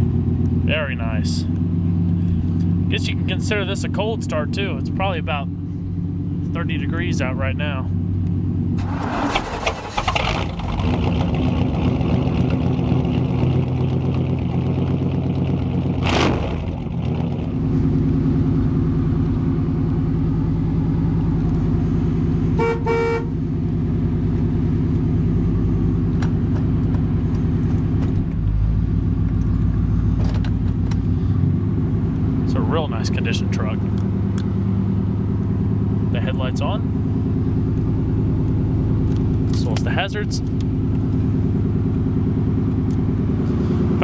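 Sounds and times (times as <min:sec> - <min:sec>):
truck engine idling: 0:00.0 - 0:15.9
car horn toots: 0:22.6 - 0:23.4.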